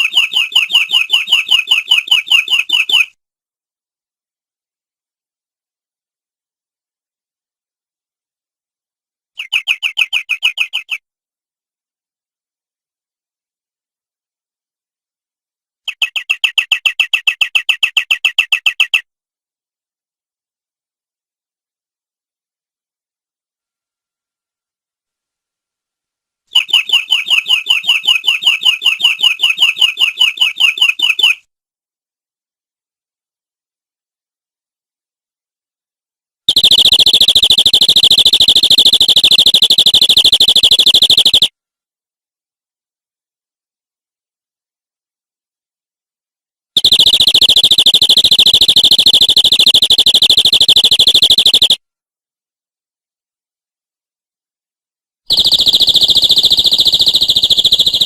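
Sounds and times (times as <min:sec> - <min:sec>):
canary trilling: 0:36.5 - 0:41.5, 0:46.8 - 0:51.8, 0:55.3 - 0:58.0.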